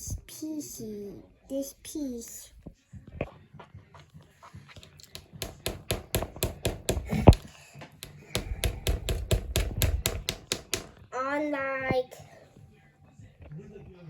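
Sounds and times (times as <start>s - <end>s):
heavier plastic knock: 5.2s - 7.4s, 8.0s - 11.0s.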